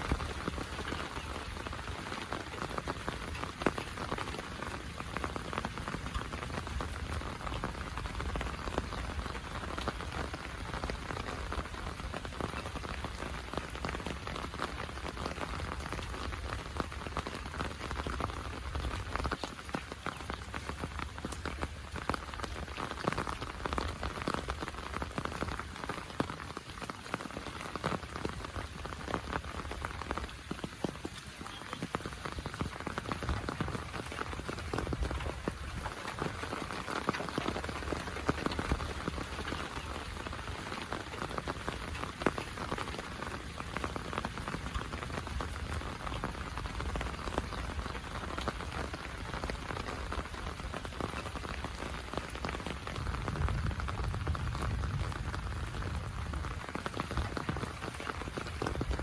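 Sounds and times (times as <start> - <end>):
heavy rain pattering: 0.0 - 59.0.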